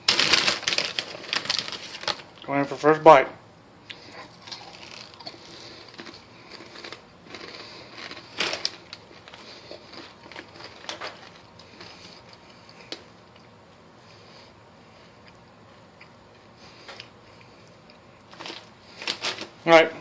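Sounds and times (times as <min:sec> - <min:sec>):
person chewing crunchy snacks: 0:03.9 - 0:13.5.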